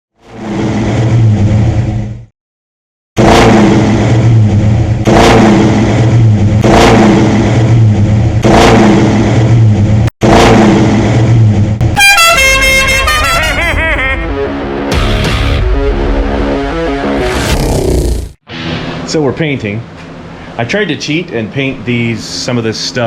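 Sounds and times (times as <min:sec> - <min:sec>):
car engine revving: 0:03.2 - 0:18.9.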